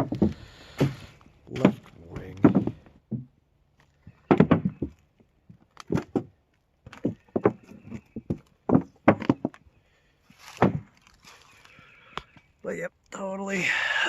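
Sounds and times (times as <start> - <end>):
footsteps on forest floor: 0.1 - 2.9, 10.3 - 12.5.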